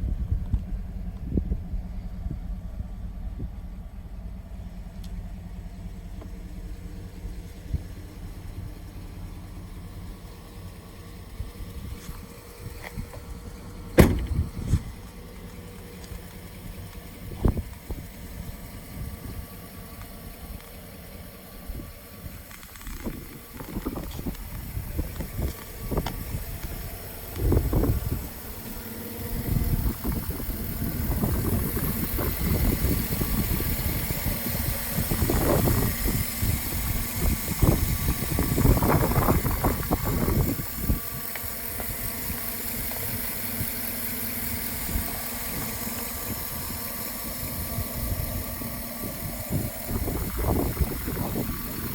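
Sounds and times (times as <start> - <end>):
wind buffeting microphone: 0.0 - 2.6, 14.0 - 15.2, 16.1 - 19.6, 21.5 - 43.7, 44.4 - 51.9
vehicle engine rumbling: 0.0 - 51.9.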